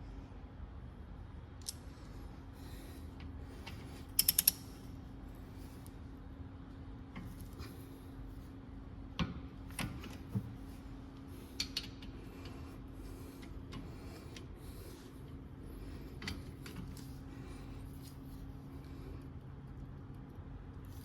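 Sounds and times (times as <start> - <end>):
steady low hum: 0.0 - 21.0
metallic clicks and knocks of tools: 4.2 - 4.8.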